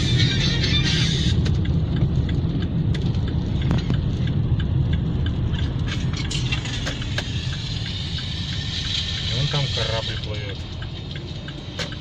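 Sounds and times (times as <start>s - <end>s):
car driving at highway speed: 0.0s - 12.0s
light ticks: 1.4s - 9.3s, 10.2s - 12.0s.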